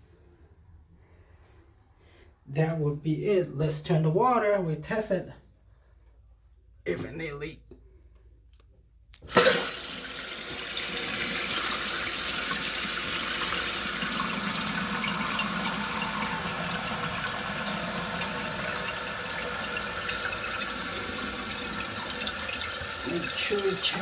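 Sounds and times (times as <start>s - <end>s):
toilet tank filling hiss: 9.2s - 24.0s.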